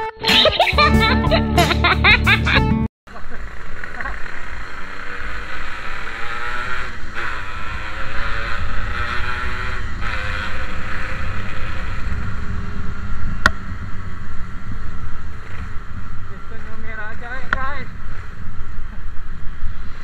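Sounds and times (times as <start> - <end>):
motorcycle engine accelerating: 3.1 - 20.0
wind on microphone: 6.5 - 20.0.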